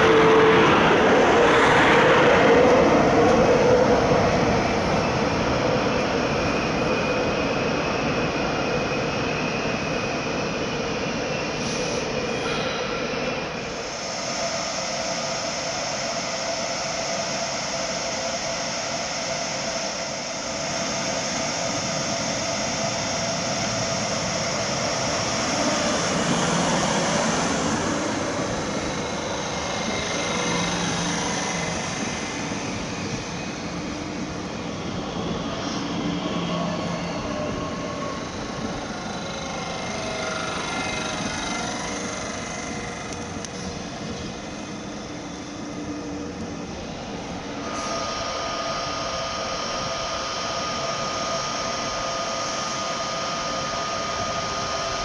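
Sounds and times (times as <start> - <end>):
steady high squeal: 0.0 - 55.0
train rail noise: 0.0 - 55.0
electric motor whine: 38.2 - 44.6.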